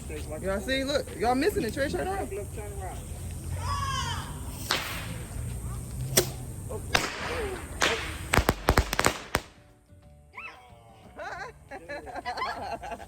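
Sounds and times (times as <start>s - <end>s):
fireworks cracking: 4.6s - 9.7s.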